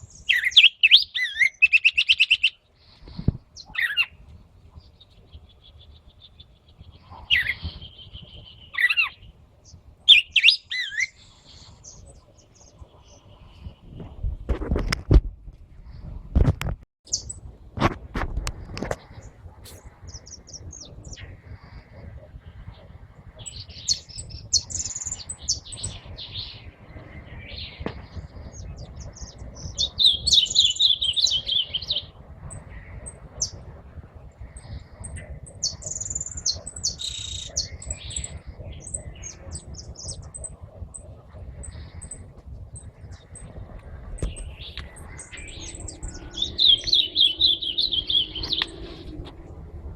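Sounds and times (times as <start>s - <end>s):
bird warbling song: 0.0s - 14.8s, 17.1s - 17.5s, 18.8s - 49.6s
songbirds chirping and calling: 0.0s - 15.0s, 17.1s - 49.9s
low rumble: 37.6s - 49.9s.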